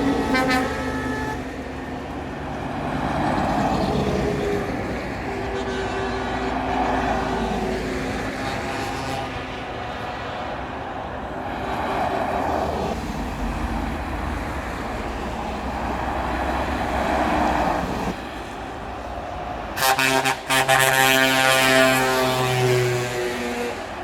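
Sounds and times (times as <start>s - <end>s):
truck air horn: 0.0s - 2.0s, 4.1s - 10.2s, 19.8s - 24.0s
heavy trucks driving past: 0.0s - 24.0s.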